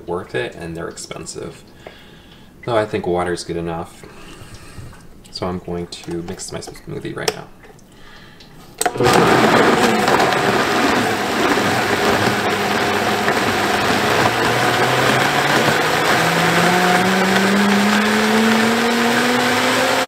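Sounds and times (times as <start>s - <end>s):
blender running: 8.8s - 20.0s.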